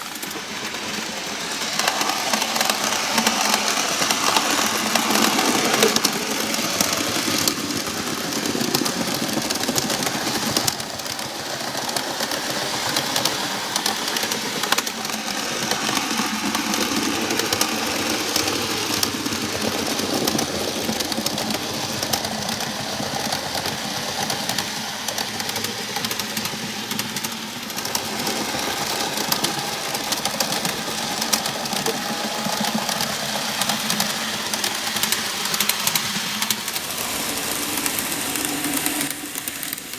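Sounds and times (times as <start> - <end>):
wheels clicking over rails: 0.0 - 39.9.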